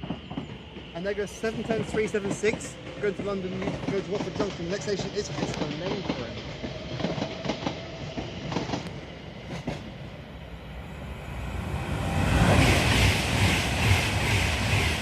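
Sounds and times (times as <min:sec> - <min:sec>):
train wheels clicking over rail joints: 0:00.0 - 0:09.9
fast electric train passing: 0:00.0 - 0:15.0.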